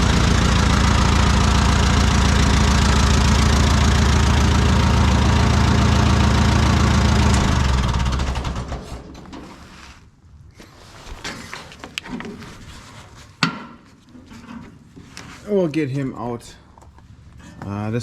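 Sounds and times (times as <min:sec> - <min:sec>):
tractor engine running: 0:00.0 - 0:09.3.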